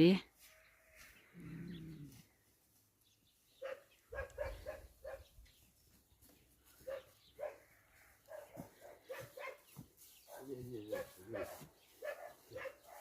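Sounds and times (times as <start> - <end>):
faint dog barking: 3.6 - 5.3, 6.8 - 9.7, 10.3 - 13.0.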